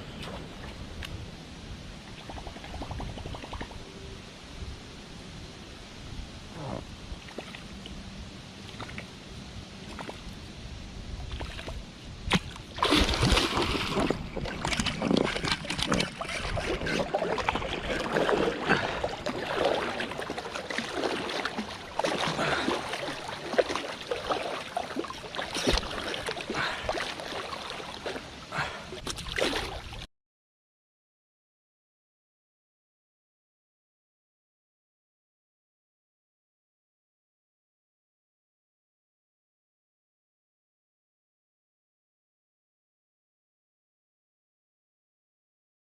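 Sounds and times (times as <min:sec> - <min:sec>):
water splashing and sloshing: 0:07.0 - 0:08.0, 0:08.6 - 0:09.2, 0:09.8 - 0:10.4, 0:11.1 - 0:30.1.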